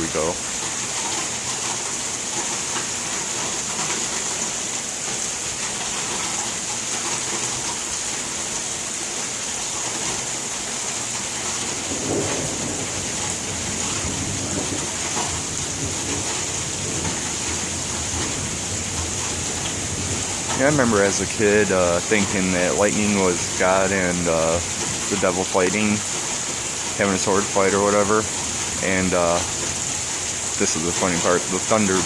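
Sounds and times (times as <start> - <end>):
rain hissing: 0.0 - 32.0
low thunder rumble: 11.8 - 26.1.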